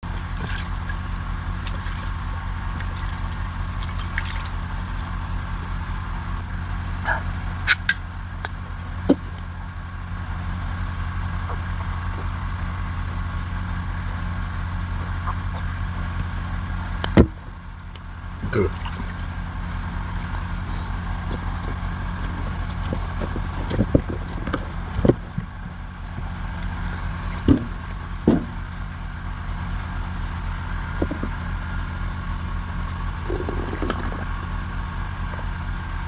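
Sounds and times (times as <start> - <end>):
low mechanical drone: 0.0 - 36.0.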